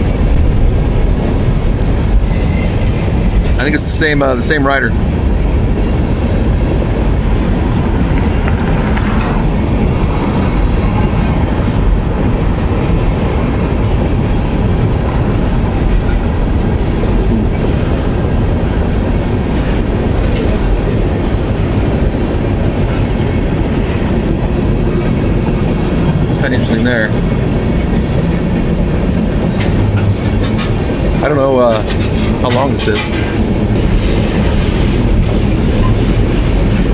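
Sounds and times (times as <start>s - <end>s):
freight train wheels rumbling: 0.0s - 36.9s.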